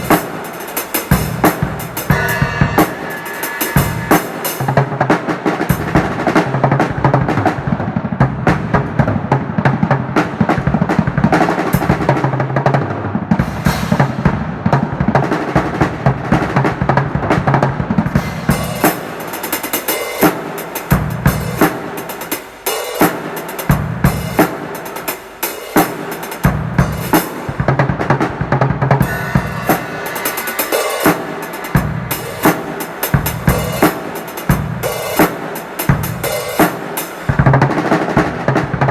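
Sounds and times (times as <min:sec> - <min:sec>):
cymbals: 0:00.0 - 0:08.8, 0:13.4 - 0:38.9
drum kit fast groove: 0:00.0 - 0:38.9
snare drum: 0:00.0 - 0:38.9
bass drum: 0:01.1 - 0:05.1, 0:26.5 - 0:33.9.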